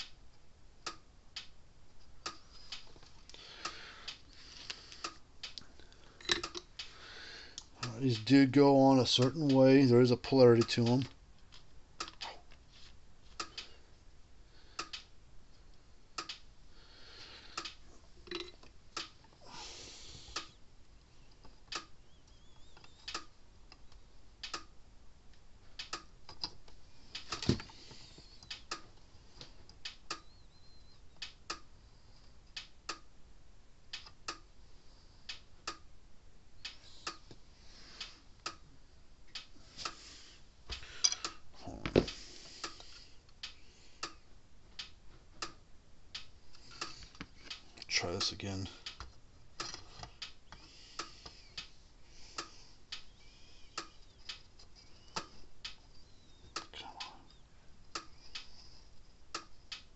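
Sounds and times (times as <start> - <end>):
hand tools clicking and tapping: 2.3 - 7.0, 17.5 - 19.1, 40.7 - 43.0, 48.9 - 51.7
soft hisses: 36.7 - 38.3.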